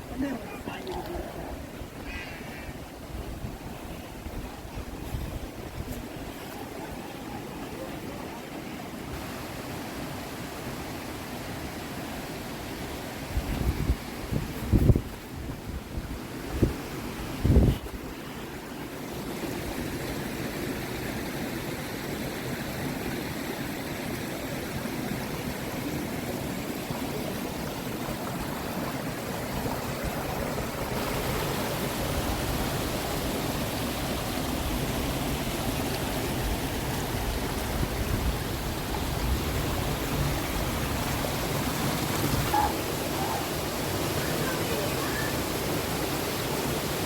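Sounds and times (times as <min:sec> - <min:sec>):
stream flowing: 0:00.0 - 0:47.0
wind thump on microphone: 0:13.4 - 0:15.2.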